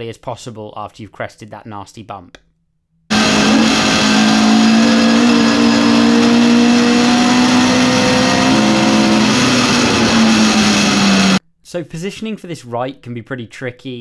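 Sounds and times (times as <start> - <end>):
race car engine at full throttle: 3.1 - 11.4.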